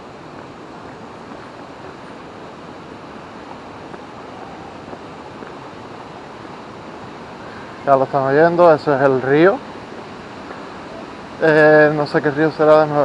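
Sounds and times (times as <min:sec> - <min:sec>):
river water rushing over rocks: 0:00.0 - 0:13.0.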